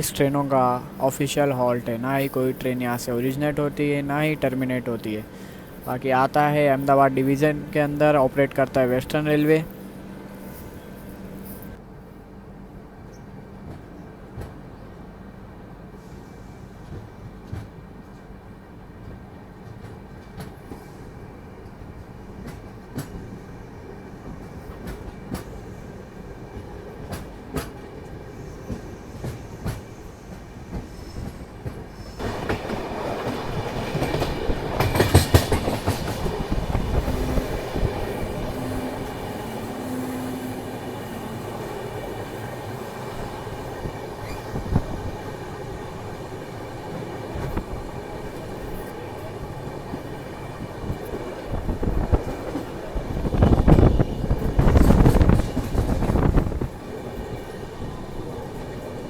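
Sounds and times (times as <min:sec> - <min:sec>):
train rumble: 0:00.0 - 0:59.0
train wheels clicking over rail joints: 0:24.2 - 0:40.5, 0:49.9 - 0:57.4.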